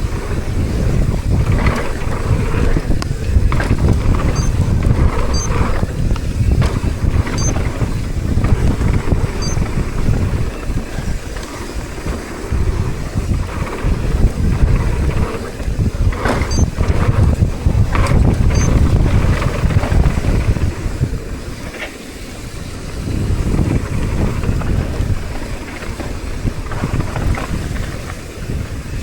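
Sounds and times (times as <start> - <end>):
mountain bike rolling on dirt: 0.0 - 29.0
wind buffeting microphone: 0.0 - 29.0
bike knocking over bumps: 1.3 - 10.3.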